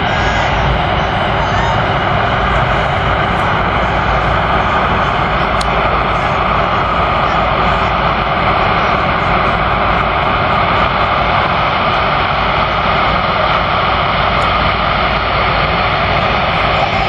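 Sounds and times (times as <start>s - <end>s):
jet engines rushing: 0.0s - 17.0s.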